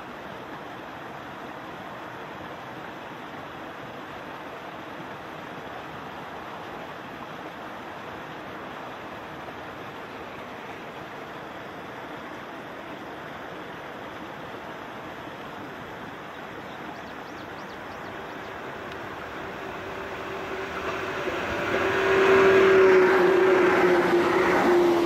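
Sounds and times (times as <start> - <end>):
steady tone: 17.6 - 25.0
electric train running: 17.8 - 25.0.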